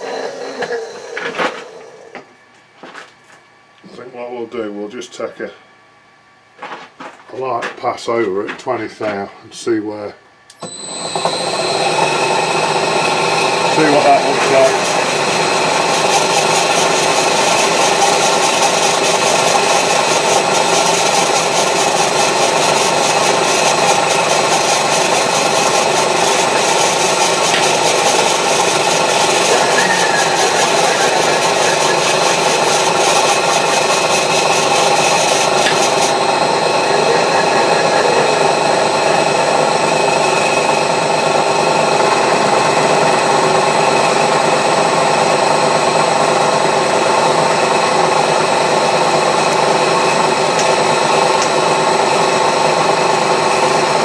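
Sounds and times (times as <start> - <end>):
milling machine whine: 0.0 - 4.4, 10.4 - 54.0
cutter scratching through steel: 13.8 - 36.2.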